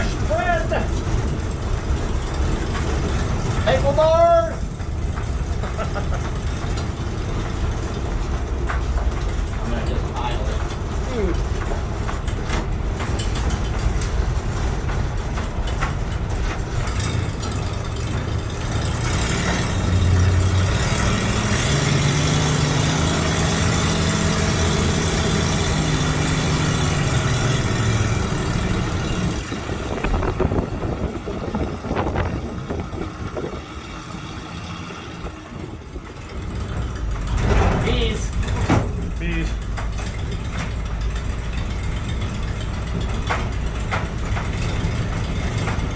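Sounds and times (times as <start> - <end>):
truck engine running: 0.0 - 45.9
knocks: 36.8 - 40.8.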